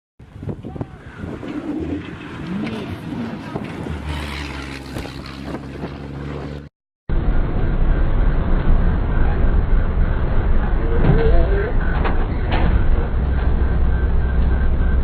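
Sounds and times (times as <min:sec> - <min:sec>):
wind buffeting microphone: 0:00.2 - 0:06.2
truck engine drone: 0:00.2 - 0:15.0.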